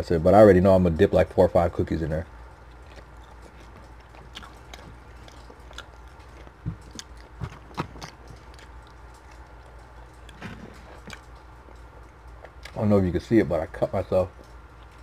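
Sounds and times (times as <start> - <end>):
chewing mouth sounds: 2.5 - 12.8.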